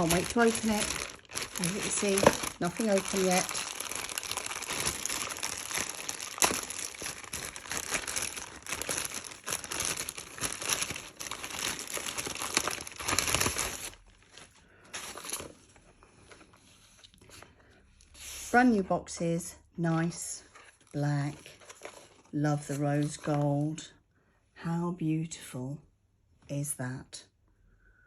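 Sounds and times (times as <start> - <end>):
packaging crinkling and rustling: 0.0 - 17.5, 20.5 - 23.4.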